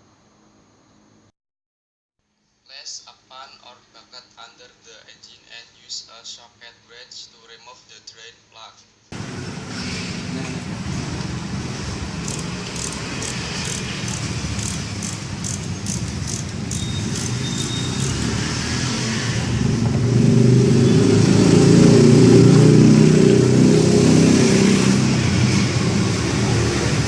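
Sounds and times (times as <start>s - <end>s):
engine running: 9.2s - 27.0s.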